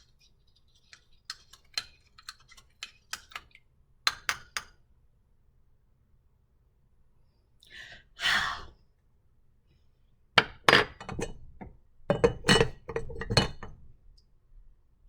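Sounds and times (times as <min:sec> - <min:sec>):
clinks and knocks of hard objects: 0:12.1 - 0:13.8.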